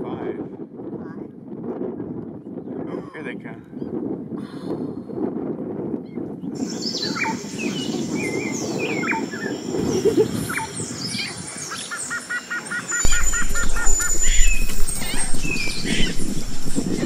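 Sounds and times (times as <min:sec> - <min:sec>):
birds whistling and chirping: 0:06.0 - 0:17.0
low rushing background noise: 0:06.9 - 0:17.0.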